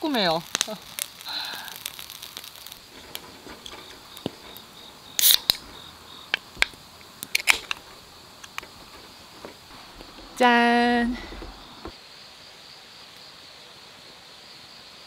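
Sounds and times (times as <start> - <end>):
can pull-tab crack with fizz: 0.1 - 10.3.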